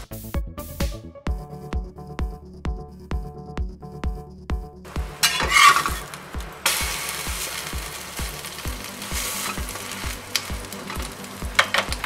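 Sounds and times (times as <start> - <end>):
background music with low beat: 0.0 - 12.0
bread sizzling in butter: 5.0 - 12.0.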